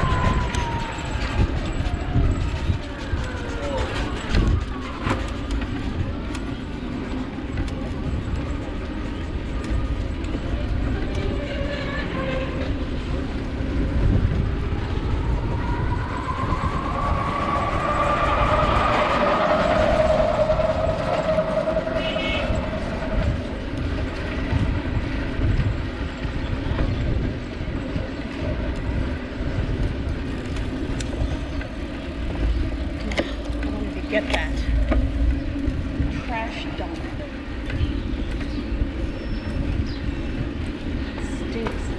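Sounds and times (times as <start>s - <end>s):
wind and road noise: 0.0s - 41.9s
vehicle passing: 10.4s - 26.2s
high horn-like tone: 19.8s - 23.4s.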